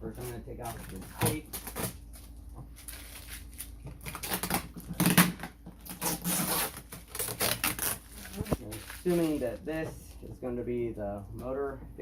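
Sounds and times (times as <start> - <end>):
tape being peeled off: 0.2 - 9.4.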